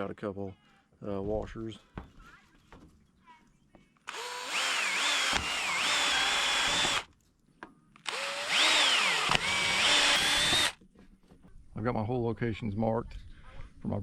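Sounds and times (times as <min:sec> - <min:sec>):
drill hole saw cutting plastic: 0:04.1 - 0:07.1, 0:08.0 - 0:10.8.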